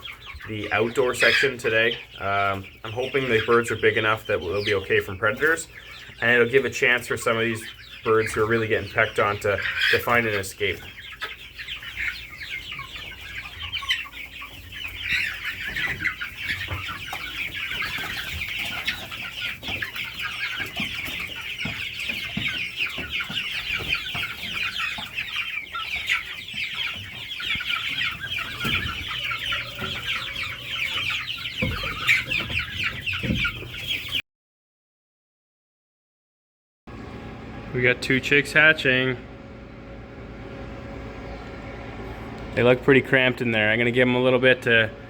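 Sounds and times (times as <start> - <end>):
chickens clucking: 0.0 - 34.2, 36.9 - 45.0.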